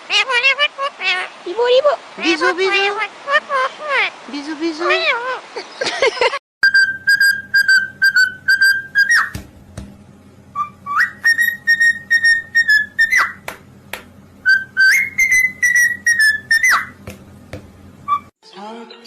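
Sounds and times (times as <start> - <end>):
parrot whistling a tune: 6.6 - 9.4, 10.5 - 13.4, 14.4 - 17.0, 18.0 - 18.3.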